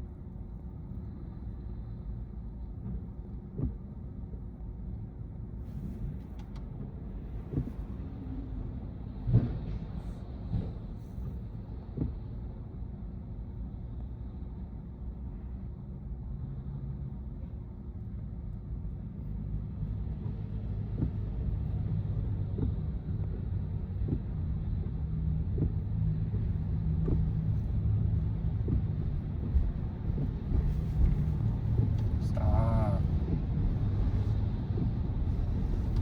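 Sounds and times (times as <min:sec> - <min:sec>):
road and tyre rumble: 0:00.0 - 0:36.0
windshield wipers sweeping: 0:27.0 - 0:36.0.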